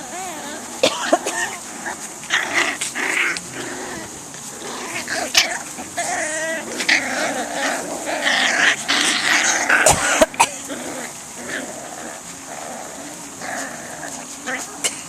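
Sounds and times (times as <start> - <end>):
puppy cries: 0.0 - 4.1, 4.8 - 12.3
puppies growling and whining: 0.0 - 15.0.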